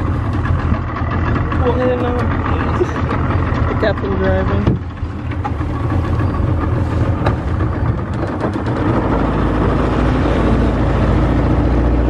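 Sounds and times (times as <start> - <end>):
motorboat engine running: 0.0 - 12.0
rushing water noise: 5.0 - 12.0.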